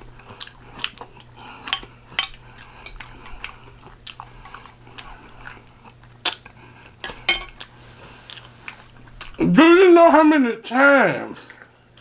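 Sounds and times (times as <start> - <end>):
wet chewing mouth smacks: 0.3 - 9.4.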